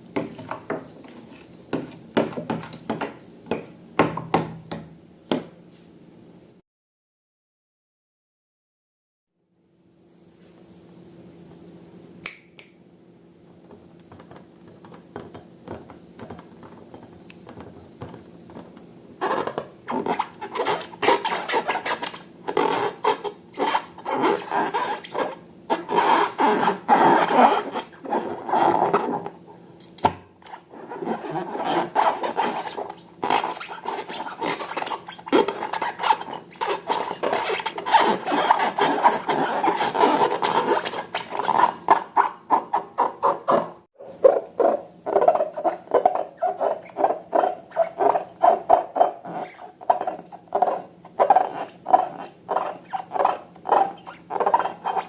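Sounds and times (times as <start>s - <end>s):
faint steady hum: 9.4s - 43.0s
slime rubbing and scraping: 19.2s - 29.3s, 30.5s - 55.0s.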